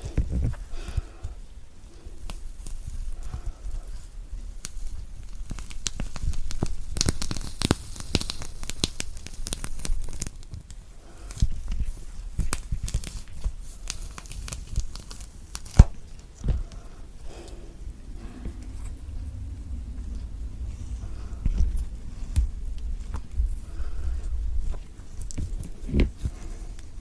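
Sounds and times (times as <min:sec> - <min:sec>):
orange peel tearing: 0:12.4 - 0:19.0
sharp snap: 0:13.8 - 0:16.5.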